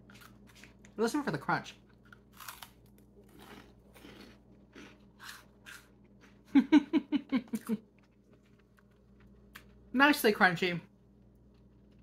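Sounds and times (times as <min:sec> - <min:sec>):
crunching and chewing: 0:00.0 - 0:01.0, 0:01.7 - 0:06.6, 0:07.5 - 0:09.9, 0:11.2 - 0:12.0.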